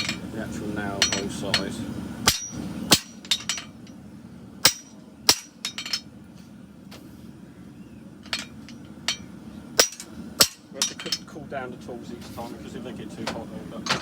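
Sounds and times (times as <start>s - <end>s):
hammer striking metal on anvil: 1.0s - 1.7s, 2.3s - 3.7s, 4.6s - 6.0s, 9.1s - 11.3s.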